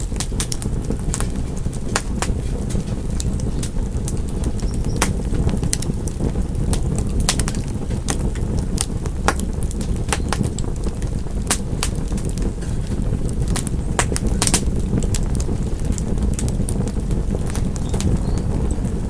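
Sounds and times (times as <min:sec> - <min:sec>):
low rumble of flame: 0:00.0 - 0:19.0
wood fire crackling and popping: 0:00.0 - 0:19.0.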